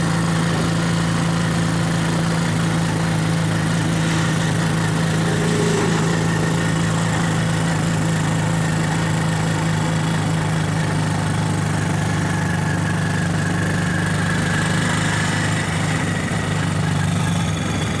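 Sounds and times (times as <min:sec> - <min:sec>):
road noise: 0:01.8 - 0:09.4
vehicle engine humming: 0:02.4 - 0:08.9.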